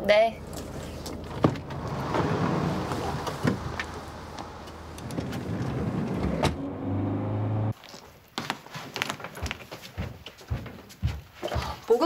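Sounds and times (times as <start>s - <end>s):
car engine humming: 0.4s - 7.8s.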